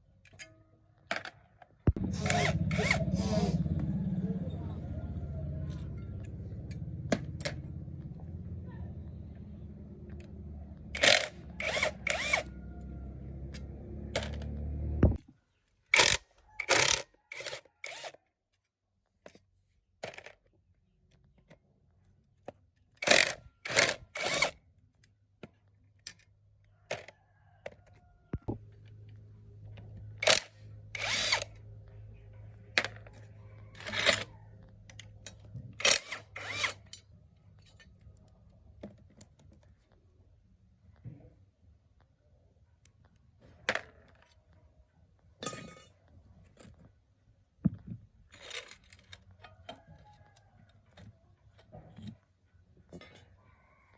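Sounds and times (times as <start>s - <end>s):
low steady hum: 1.9s - 15.2s
metal tools and parts clinking: 45.4s - 46.8s.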